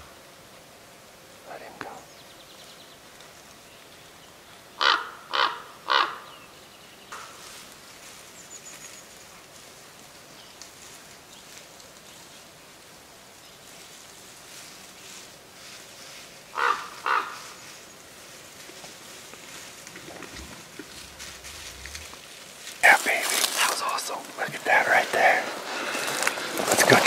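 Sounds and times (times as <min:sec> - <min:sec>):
faint woodland birds: 0:00.0 - 0:27.0
loud harsh bird calls: 0:04.8 - 0:06.6, 0:16.5 - 0:17.6.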